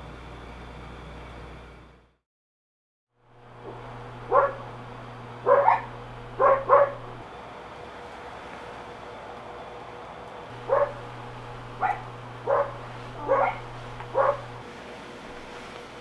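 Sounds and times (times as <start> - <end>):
low steady hum: 3.2 - 16.0
dog barking: 3.7 - 4.7, 5.4 - 7.2, 10.7 - 11.0, 11.8 - 14.6.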